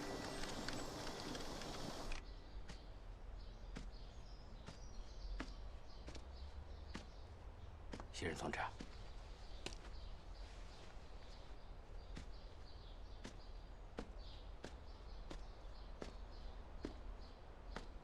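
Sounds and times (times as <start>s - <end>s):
sharp ticks: 0.0s - 2.2s
small birds chirping: 0.0s - 18.0s.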